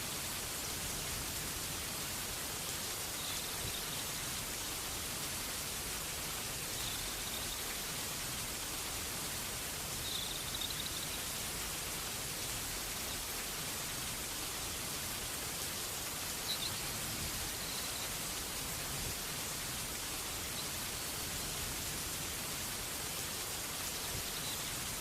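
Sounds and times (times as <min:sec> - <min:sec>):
steady rain hiss: 0:00.0 - 0:25.0
faint high chirps: 0:10.0 - 0:11.2, 0:16.4 - 0:18.2.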